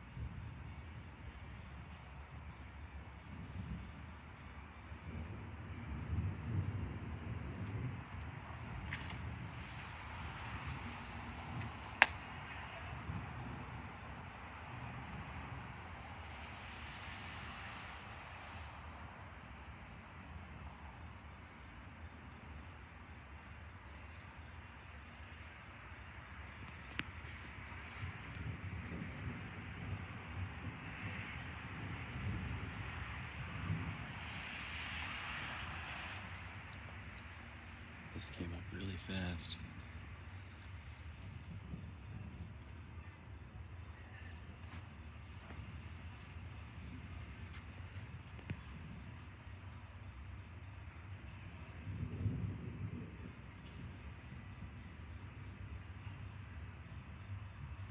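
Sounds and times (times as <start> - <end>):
crickets chirping: 0.0 - 57.9
sharp click: 12.0 - 12.2.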